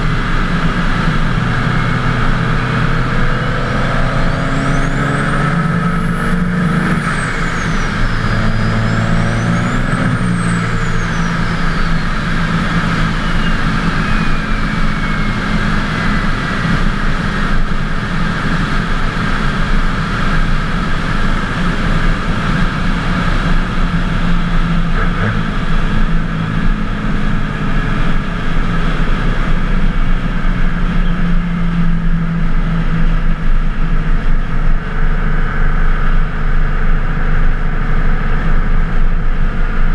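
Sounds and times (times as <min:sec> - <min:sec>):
diesel engine running: 0:00.0 - 0:39.9
high turbo whistle: 0:04.4 - 0:16.3.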